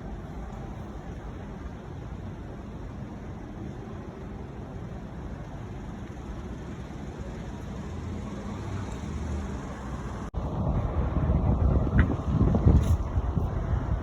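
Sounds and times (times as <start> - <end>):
wind rumbling on microphone: 9.9 - 14.0.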